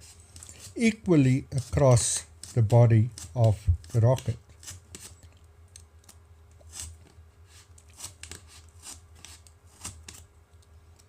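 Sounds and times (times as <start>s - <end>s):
knife cutting cardboard: 0.0s - 5.2s, 6.6s - 10.3s.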